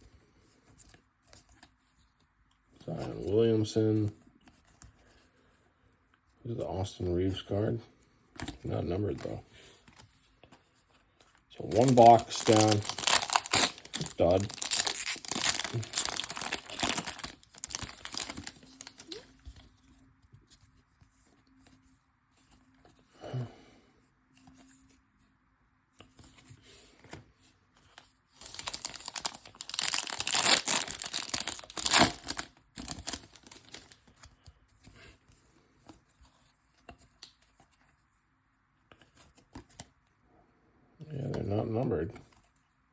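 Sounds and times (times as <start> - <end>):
handling of cards: 8.4 - 21.8, 26.0 - 38.0
plastic wrapping tearing and crinkling: 11.6 - 19.3, 28.4 - 34.0.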